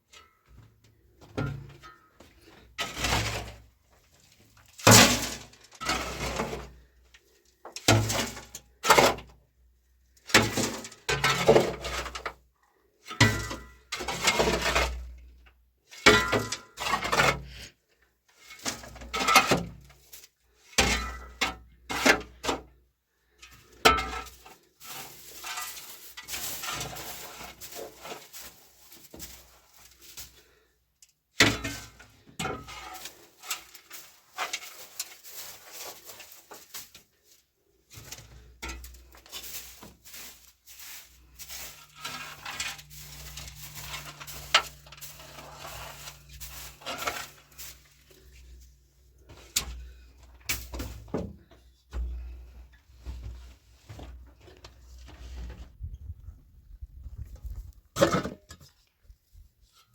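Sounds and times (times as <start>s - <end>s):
rustling noise: 24.3s - 30.7s, 32.8s - 59.8s.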